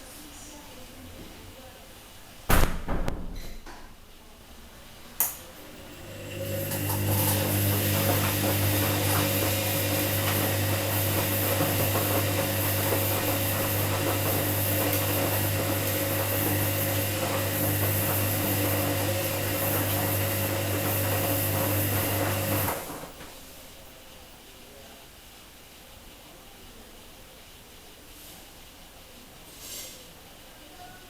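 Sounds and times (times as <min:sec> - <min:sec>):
washing machine running: 0:04.6 - 0:24.8.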